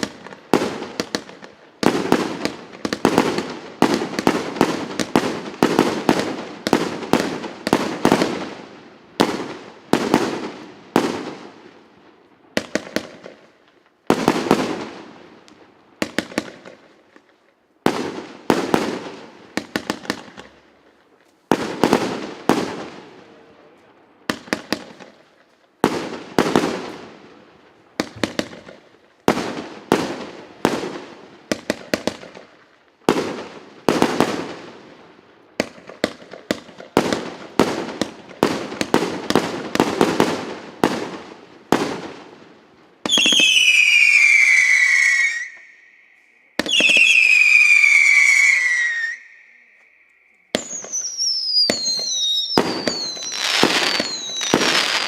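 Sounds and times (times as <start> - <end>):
fireworks bangs: 0.0 - 11.8, 12.5 - 55.0
falling firework whistles: 43.0 - 55.0.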